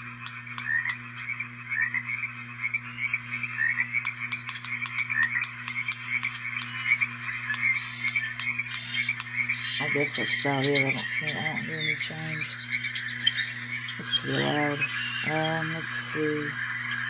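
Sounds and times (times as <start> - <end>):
sharp clicks: 0.0 - 1.1, 4.0 - 6.8, 7.5 - 9.4
recorded frogs croaking: 0.0 - 17.0
steady low hum: 0.0 - 17.0.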